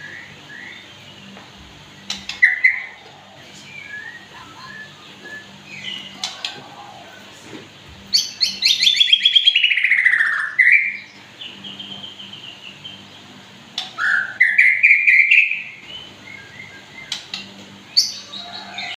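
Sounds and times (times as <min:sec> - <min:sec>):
songbird singing: 0:00.0 - 0:07.4, 0:08.0 - 0:18.9.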